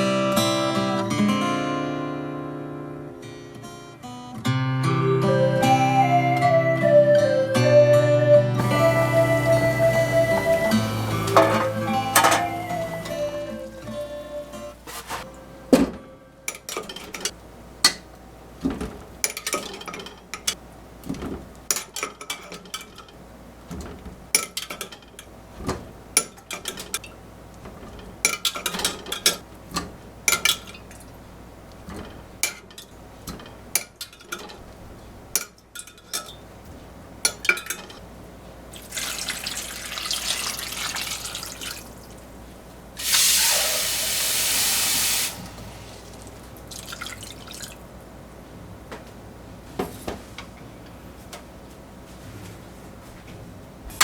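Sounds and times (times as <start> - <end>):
tap running water: 8.6 - 15.3, 38.7 - 42.3, 43.0 - 47.9
dishes and glassware clinking: 10.4 - 18.1, 18.7 - 20.6, 27.7 - 30.9, 35.4 - 36.4, 37.2 - 38.0.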